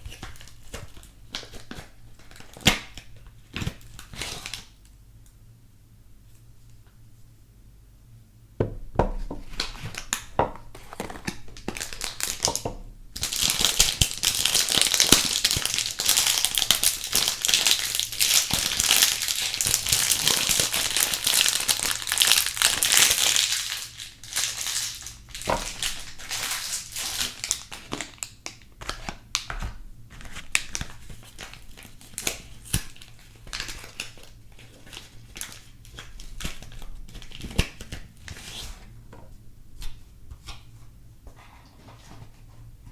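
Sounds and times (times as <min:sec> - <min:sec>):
wrapper crinkling: 0:00.0 - 0:04.7, 0:09.5 - 0:12.6, 0:13.2 - 0:38.6.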